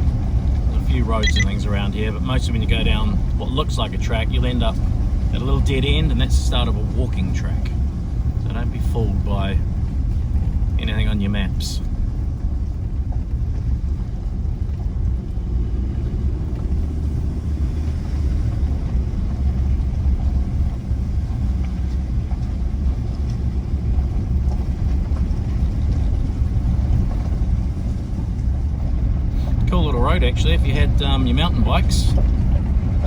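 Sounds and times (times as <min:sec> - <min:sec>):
vehicle engine and tyres rumbling: 0:00.0 - 0:33.0.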